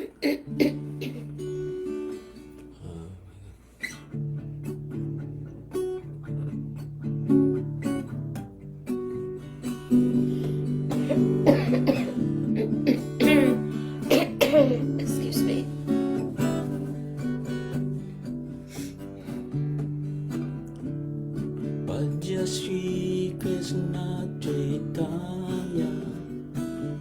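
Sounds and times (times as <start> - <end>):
acoustic guitar plucked and strummed: 0.0 - 27.0.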